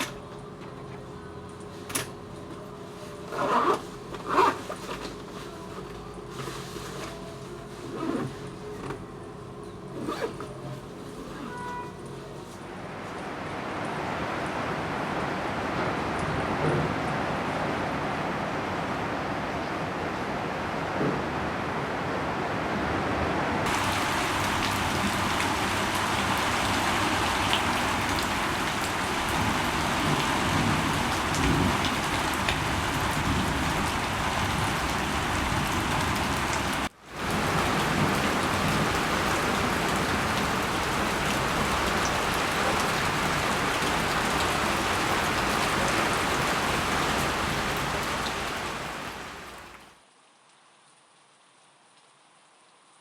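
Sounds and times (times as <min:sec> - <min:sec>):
rain pattering: 0:23.6 - 0:53.0.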